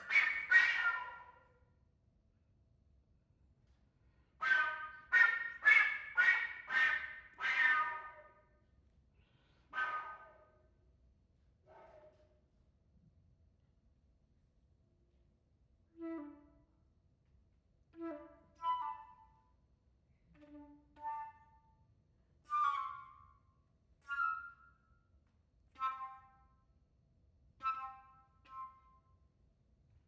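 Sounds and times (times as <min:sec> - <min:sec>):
flute notes: 0:00.0 - 0:01.5, 0:18.0 - 0:19.5, 0:22.4 - 0:23.4, 0:24.0 - 0:24.8, 0:27.6 - 0:29.1.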